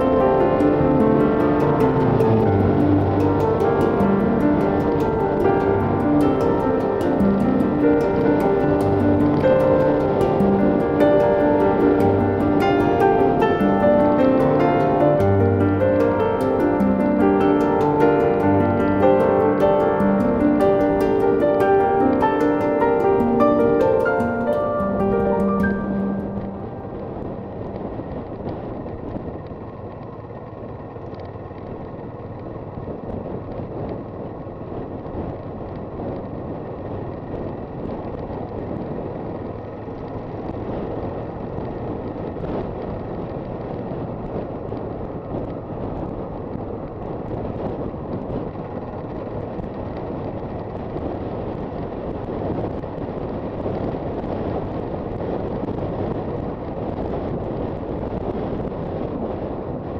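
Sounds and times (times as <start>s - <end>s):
wind rushing over microphone: 0.0s - 59.9s
motorcycle engine: 25.8s - 59.9s.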